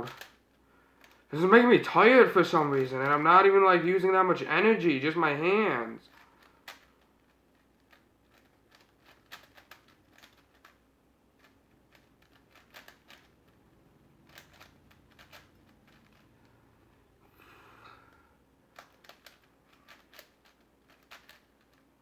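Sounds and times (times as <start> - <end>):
plastic puzzle cube clicking: 0.0 - 1.3, 6.1 - 16.5, 18.7 - 22.0.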